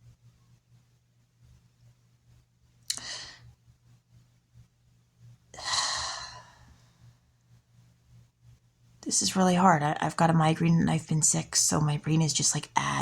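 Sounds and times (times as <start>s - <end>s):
faint low hum: 0.0s - 13.0s
woman sighing: 2.9s - 3.4s, 5.6s - 6.6s.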